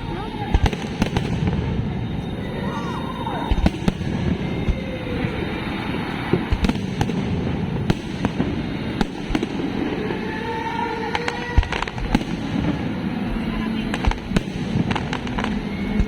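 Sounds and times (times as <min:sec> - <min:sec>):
low rumble of fireworks: 0:00.0 - 0:16.0
sharp firework cracks: 0:00.5 - 0:02.0, 0:03.5 - 0:05.0, 0:06.2 - 0:13.0, 0:13.9 - 0:16.0.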